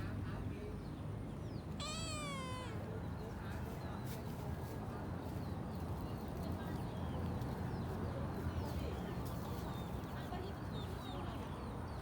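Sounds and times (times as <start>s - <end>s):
birds chirping: 1.5s - 2.9s.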